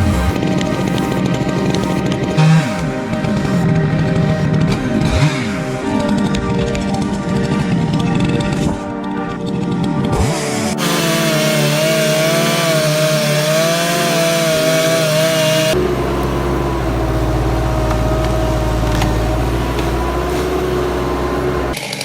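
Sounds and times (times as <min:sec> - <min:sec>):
machine drone with low rumble: 0:00.0 - 0:09.0, 0:15.7 - 0:21.8
chainsaw cutting wood: 0:10.2 - 0:22.0.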